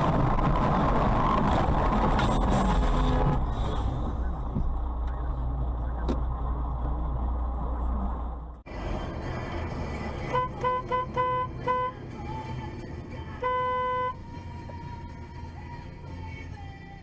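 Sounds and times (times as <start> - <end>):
road noise: 0.0 - 17.0
car horn honking: 10.2 - 12.0, 13.3 - 14.2.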